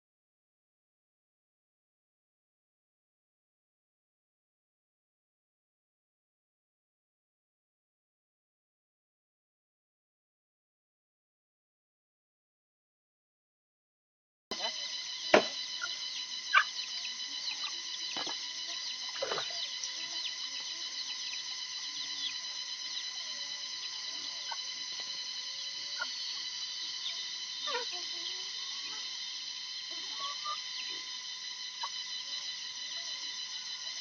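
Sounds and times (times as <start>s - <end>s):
crickets and insects trilling: 14.5s - 34.0s.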